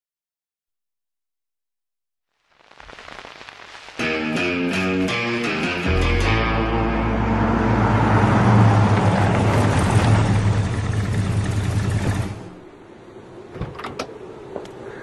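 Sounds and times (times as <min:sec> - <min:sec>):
car engine rumbling: 0:06.0 - 0:14.6.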